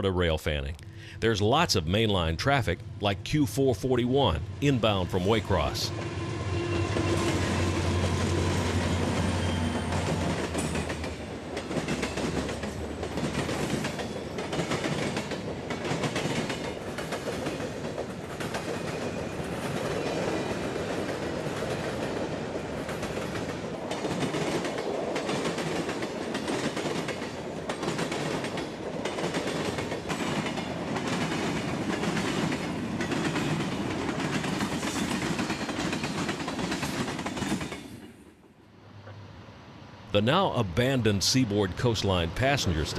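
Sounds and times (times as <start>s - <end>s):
diesel locomotive engine drone: 0.0s - 15.8s
train wheels clacking on rail joints: 6.9s - 38.2s.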